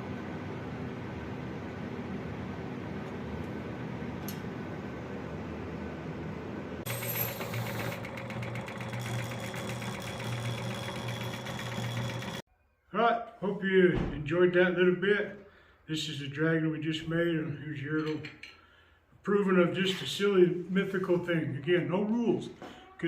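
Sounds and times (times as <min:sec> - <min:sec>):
power tool buzzing rattle: 0:06.9 - 0:12.4.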